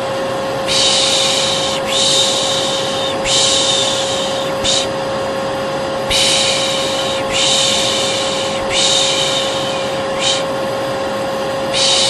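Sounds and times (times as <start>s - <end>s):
hair dryer running: 0.0s - 12.0s
person shushing: 0.7s - 4.9s, 6.1s - 10.6s, 11.7s - 12.0s.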